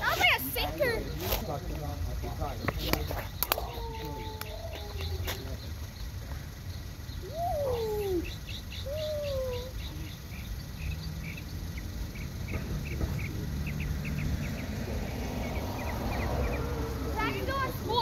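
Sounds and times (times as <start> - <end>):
bird cooing: 3.5 - 5.7, 7.2 - 10.4.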